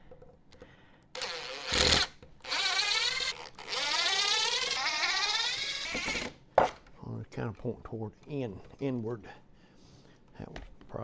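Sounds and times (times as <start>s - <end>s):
power drill motor whining: 1.2s - 6.4s.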